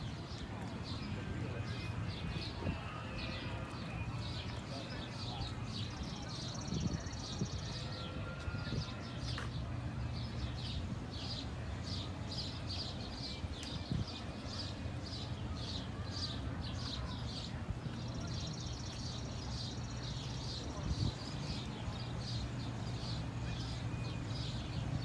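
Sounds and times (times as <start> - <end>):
small birds chirping: 8.8 - 25.0.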